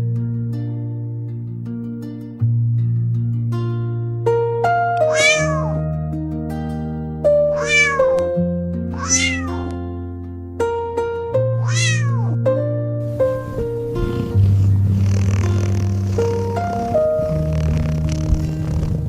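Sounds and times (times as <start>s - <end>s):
plucked-string background music: 0.0s - 19.0s
cat meowing: 5.0s - 5.8s, 7.5s - 8.3s, 9.0s - 9.7s, 11.6s - 12.4s.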